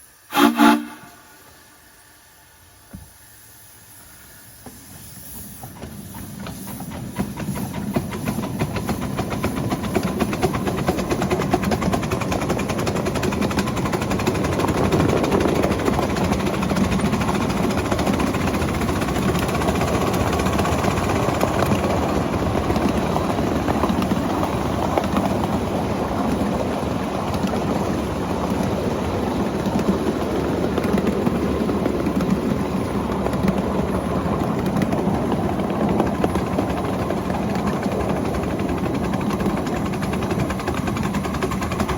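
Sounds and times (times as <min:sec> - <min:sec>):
steam locomotive whistle: 0:00.0 - 0:02.0
steam locomotive running: 0:00.0 - 0:41.9.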